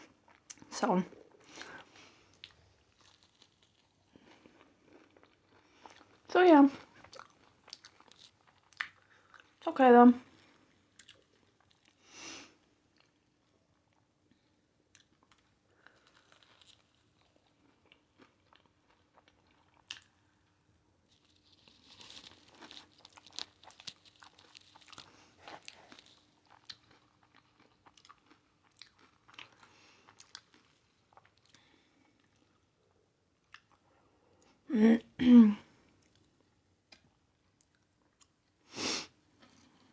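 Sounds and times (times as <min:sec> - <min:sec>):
crunchy food chewing: 0:01.4 - 0:09.6, 0:10.3 - 0:12.0, 0:14.9 - 0:20.4, 0:21.0 - 0:32.6.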